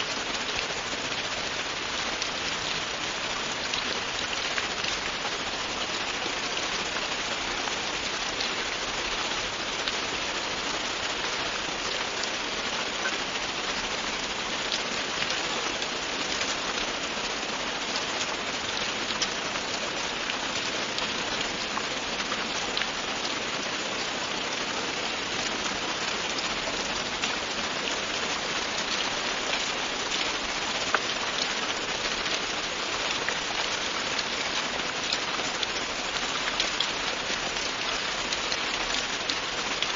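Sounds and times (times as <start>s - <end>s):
heavy rain hissing: 0.0s - 39.9s
raindrops ticking: 0.0s - 39.9s.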